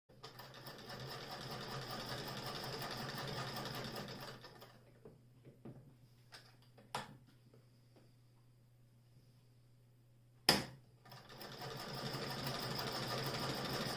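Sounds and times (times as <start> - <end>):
sewing machine clatter: 0.2 - 4.8, 11.1 - 13.9.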